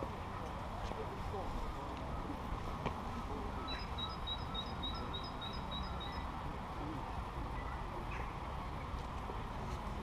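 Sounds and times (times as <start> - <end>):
low background noise: 0.0 - 10.0
songbird chirping: 1.9 - 6.4.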